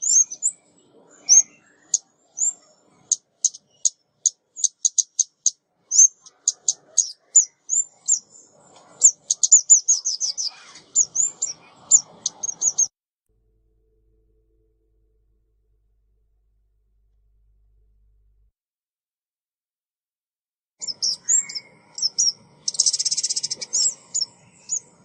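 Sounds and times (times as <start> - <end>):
songbird chirping: 0.0 - 12.9, 20.8 - 25.0.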